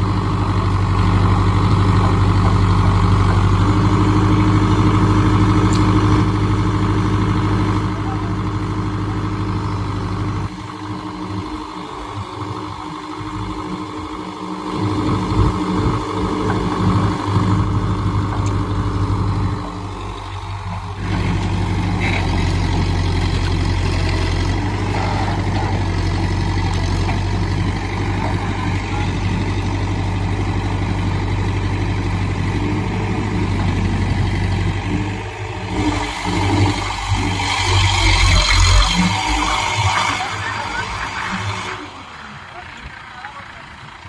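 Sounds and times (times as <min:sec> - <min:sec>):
heavy diesel engine running: 0:00.0 - 0:44.0.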